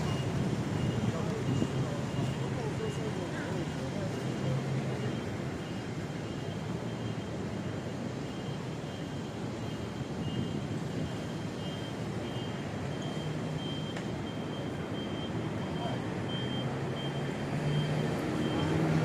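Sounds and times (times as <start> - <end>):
passing traffic: 0.0 - 19.0.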